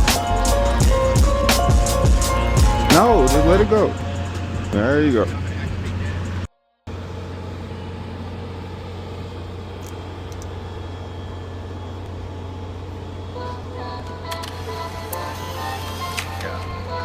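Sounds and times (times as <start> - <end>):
vehicle road noise: 0.0 - 12.2.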